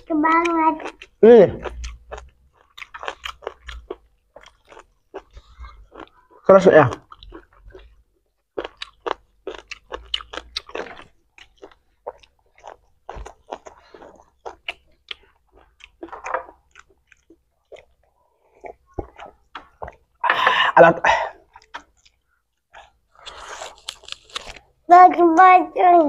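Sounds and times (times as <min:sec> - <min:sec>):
people chewing food: 0:00.0 - 0:24.9
mouth clicks and smacks: 0:08.6 - 0:20.2, 0:21.4 - 0:24.7.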